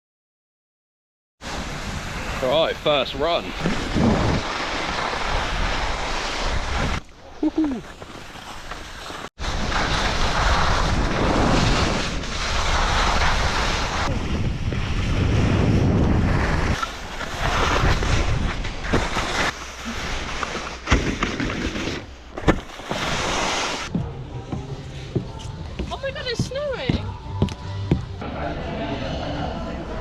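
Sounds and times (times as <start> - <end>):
wind rushing over microphone: 1.4 - 7.0, 9.4 - 19.2
skis scraping over snow: 1.5 - 23.9.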